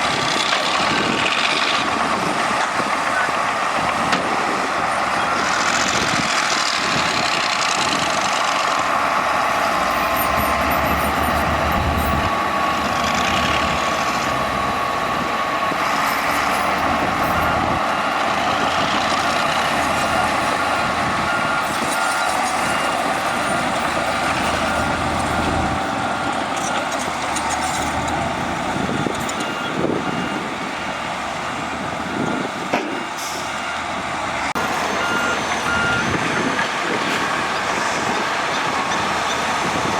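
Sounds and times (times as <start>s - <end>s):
diesel earthmoving machinery running: 0.0s - 39.9s
reversing alarm beeps: 5.2s - 5.6s, 17.2s - 18.3s, 19.4s - 27.8s, 29.0s - 30.5s, 32.0s - 36.2s.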